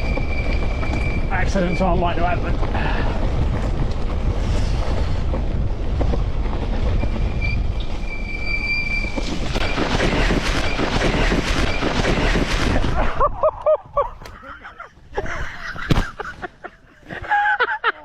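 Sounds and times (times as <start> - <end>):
brakes squealing: 0.0 - 12.5
wind buffeting microphone: 0.0 - 16.3.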